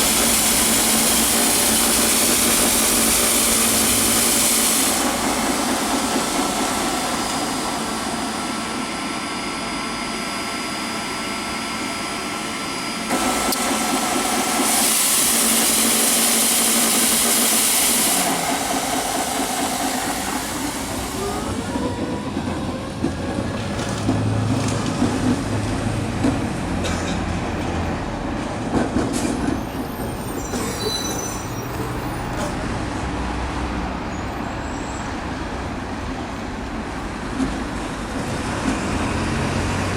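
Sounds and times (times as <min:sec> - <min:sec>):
loud hiss: 0:00.0 - 0:09.0, 0:13.1 - 0:21.7
floor scrubber running: 0:13.1 - 0:22.2.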